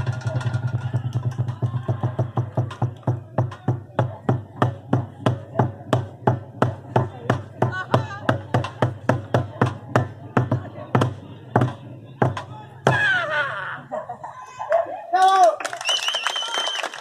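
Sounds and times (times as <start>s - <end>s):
percussion beat of sharp strikes: 0.0s - 13.2s.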